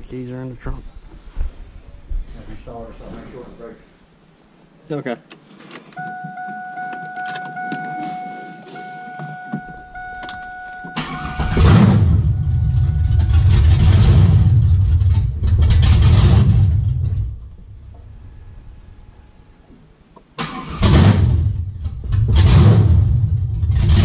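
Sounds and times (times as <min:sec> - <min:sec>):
dashboard chime tone: 0:06.0 - 0:13.6
car engine running loudly: 0:11.0 - 0:17.3.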